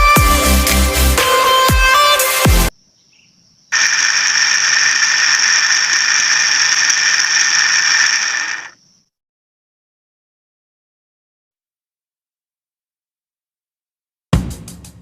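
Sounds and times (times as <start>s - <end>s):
small electric motor whining: 3.8s - 8.8s.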